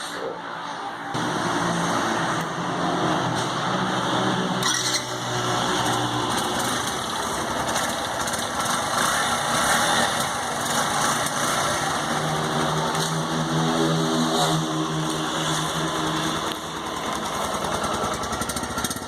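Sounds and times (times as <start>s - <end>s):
motorcycle engine idling: 6.1s - 13.6s, 14.8s - 19.0s.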